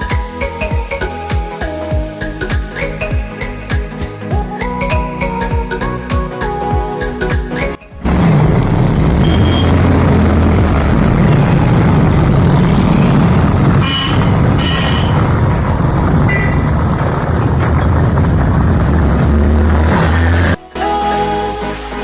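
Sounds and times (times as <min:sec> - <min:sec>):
engine rumble: 0:05.6 - 0:21.8.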